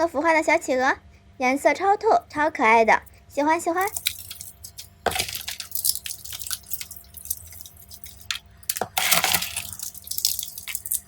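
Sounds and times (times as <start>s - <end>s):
gel beads crackling: 3.4s - 11.0s
wet squelching: 3.8s - 11.0s.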